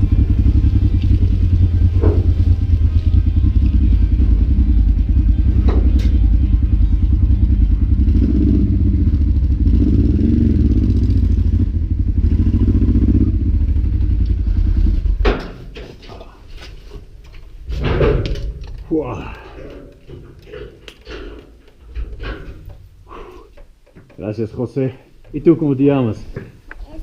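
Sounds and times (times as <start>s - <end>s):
motorcycle engine running: 0.0s - 15.5s.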